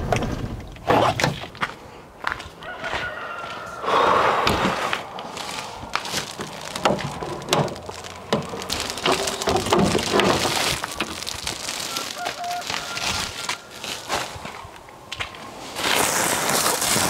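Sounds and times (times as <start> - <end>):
wood shavings rustling and crunching: 4.8 - 17.0.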